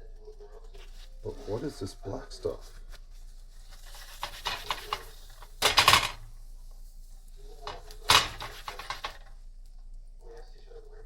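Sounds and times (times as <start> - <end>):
pan clattering scrapes: 3.7 - 6.4, 7.6 - 9.3.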